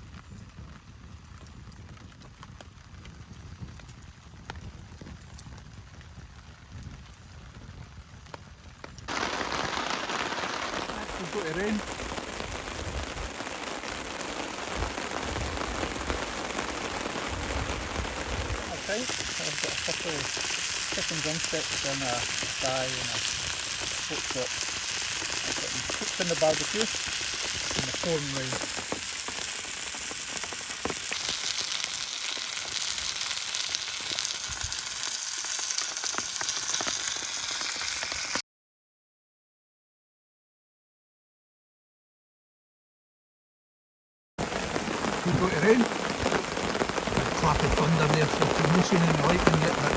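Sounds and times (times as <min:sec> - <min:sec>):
heavy rain falling: 0:09.1 - 0:38.4, 0:44.4 - 0:49.9
meat sizzling on grill: 0:09.1 - 0:38.4, 0:44.4 - 0:49.9.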